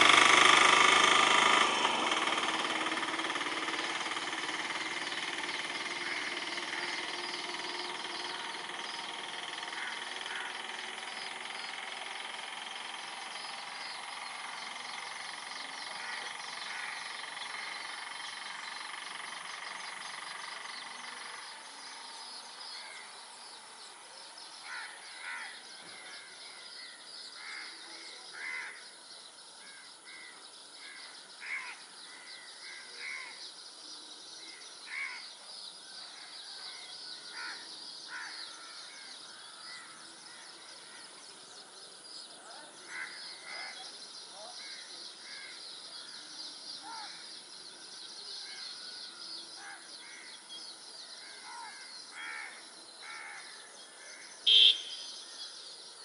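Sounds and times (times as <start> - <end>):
birds calling short notes: 0.0 - 29.0, 48.3 - 55.6.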